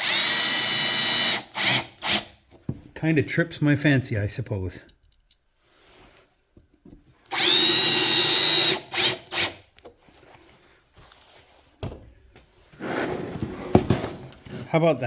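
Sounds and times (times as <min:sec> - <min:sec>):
power drill motor whine: 0:00.0 - 0:02.3, 0:07.3 - 0:09.6.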